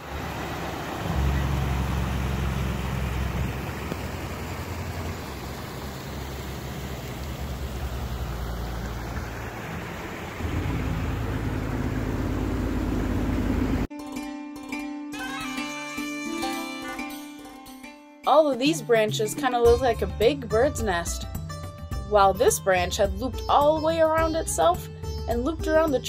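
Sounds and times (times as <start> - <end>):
waterfall rushing: 0.0 - 13.3
music: 13.9 - 26.0.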